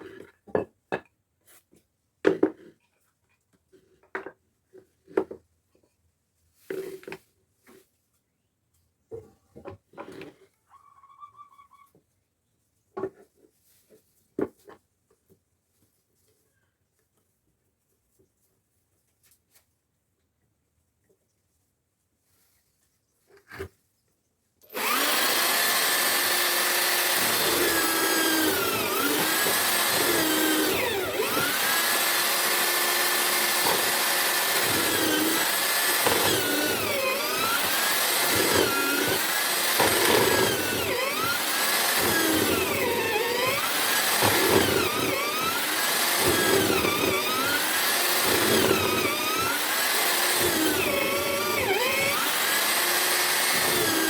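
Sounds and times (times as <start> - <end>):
drill motor cutting wood: 24.6 - 54.0.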